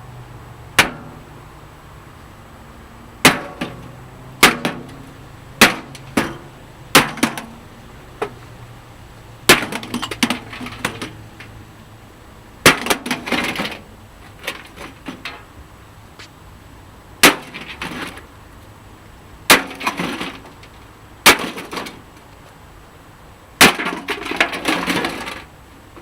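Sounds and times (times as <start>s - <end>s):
maul smashing sheet metal: 5.6s - 7.6s, 9.5s - 11.1s
metal case rattling clatter: 9.6s - 11.6s.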